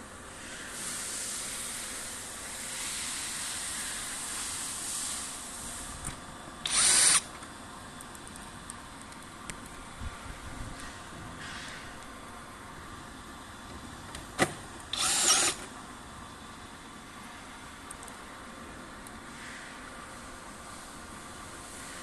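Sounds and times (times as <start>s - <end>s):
power drill burst: 6.6s - 7.3s, 14.9s - 15.7s.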